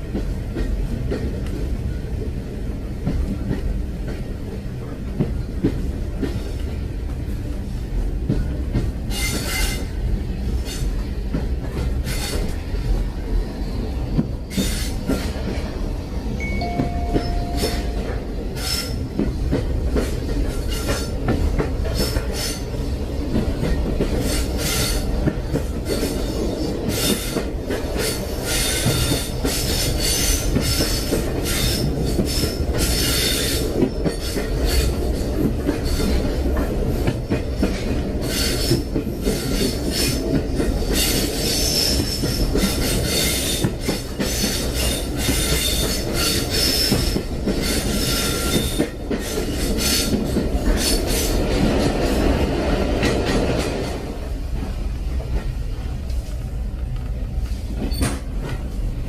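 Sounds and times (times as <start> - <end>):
train rumbling on rails: 0.0 - 59.0.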